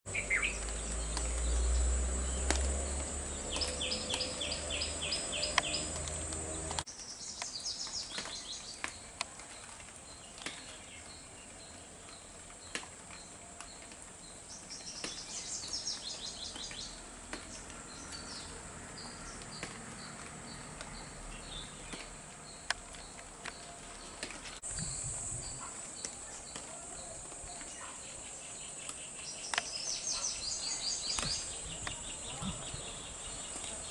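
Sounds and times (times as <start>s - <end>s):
water dripping: 0.1s - 24.8s
small birds chirping: 0.1s - 33.9s
high insect drone: 24.6s - 26.2s.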